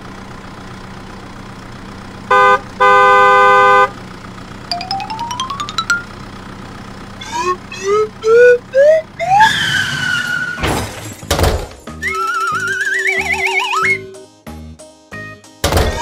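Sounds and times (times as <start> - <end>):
rising cartoon chirps: 4.7 - 6.4, 7.2 - 10.3, 12.0 - 14.2
warbling tone: 7.2 - 9.4
falling whistle: 7.2 - 10.6, 12.0 - 14.2.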